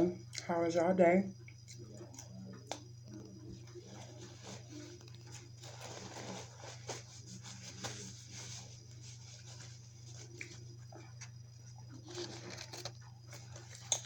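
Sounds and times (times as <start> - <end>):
food packaging rustling: 3.9 - 14.0.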